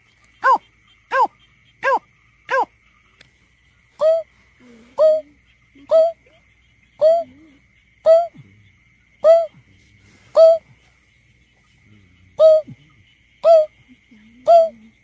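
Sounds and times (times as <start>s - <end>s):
bird hooting call: 4.0s - 4.3s, 5.0s - 6.2s, 7.0s - 7.4s, 8.1s - 8.4s, 9.2s - 9.5s, 10.4s - 10.6s, 12.4s - 12.8s, 13.4s - 13.7s.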